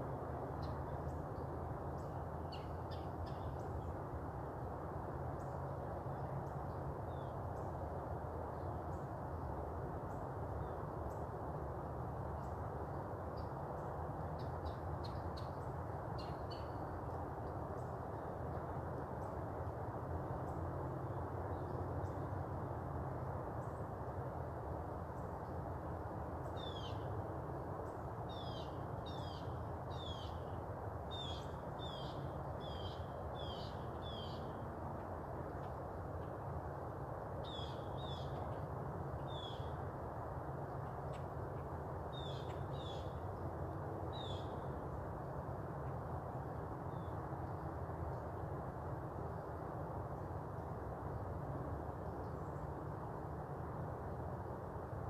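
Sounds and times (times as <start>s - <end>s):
outdoor background noise: 0.0s - 55.0s
faint bird chirps: 28.3s - 34.6s, 37.4s - 38.5s, 39.2s - 39.8s, 42.1s - 43.2s.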